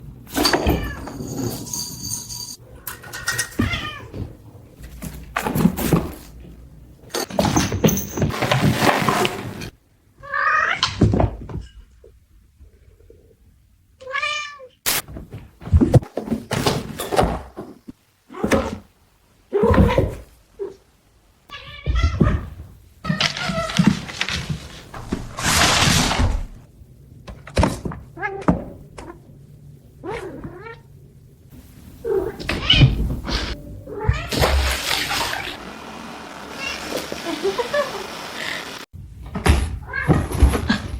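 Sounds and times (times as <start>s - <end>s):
cats meowing: 3.5s - 4.4s, 21.5s - 23.9s, 32.0s - 35.6s, 36.5s - 37.8s
cat hissing: 36.5s - 38.9s.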